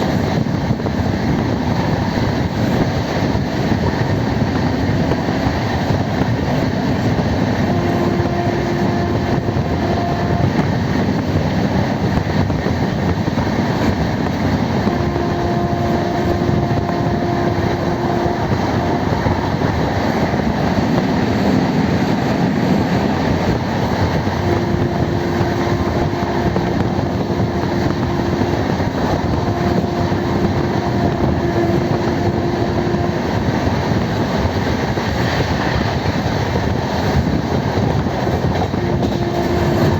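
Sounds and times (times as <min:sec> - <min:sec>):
passenger train running: 0:00.0 - 0:39.9
steady tone: 0:04.5 - 0:34.5.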